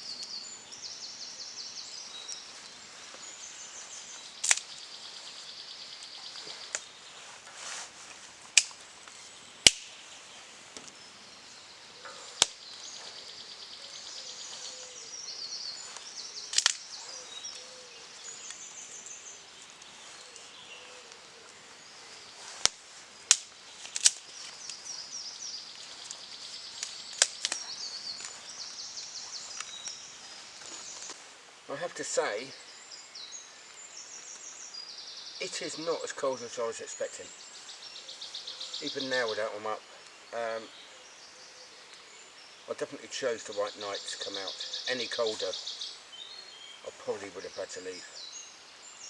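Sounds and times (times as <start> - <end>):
campfire crackling and popping: 1.7 - 31.2.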